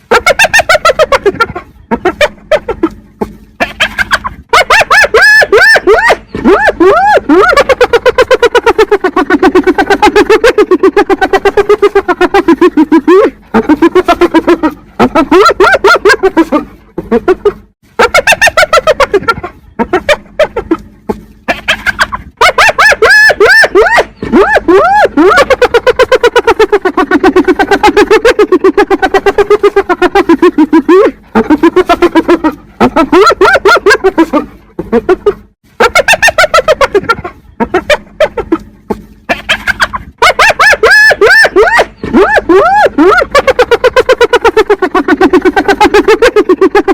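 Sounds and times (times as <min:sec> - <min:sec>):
hyena giggling: 0:00.0 - 0:46.9.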